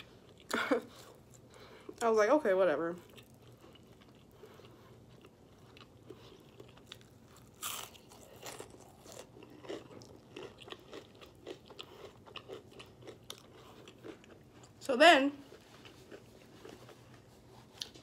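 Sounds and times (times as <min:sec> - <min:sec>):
crunchy chewing: 0:03.0 - 0:14.8, 0:15.5 - 0:18.0
crunchy bite into hash brown: 0:06.9 - 0:11.6.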